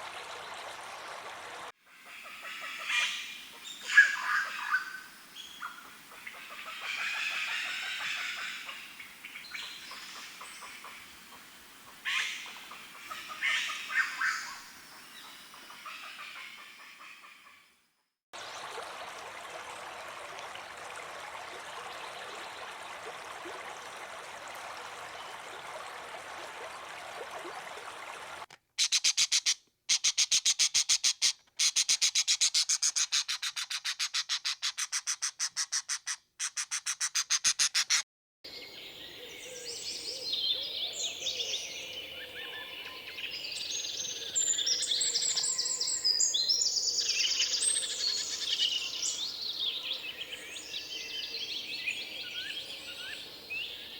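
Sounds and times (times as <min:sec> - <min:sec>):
birds chirping and calling: 0:02.2 - 0:08.8, 0:12.1 - 0:14.6.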